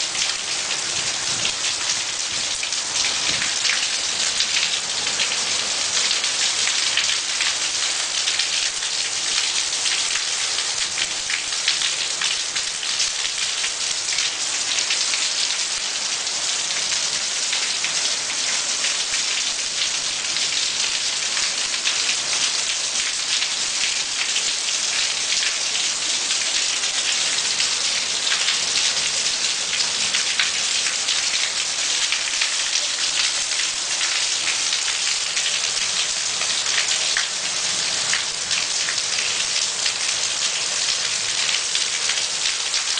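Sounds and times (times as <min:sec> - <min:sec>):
heavy rain: 0:00.0 - 0:42.9.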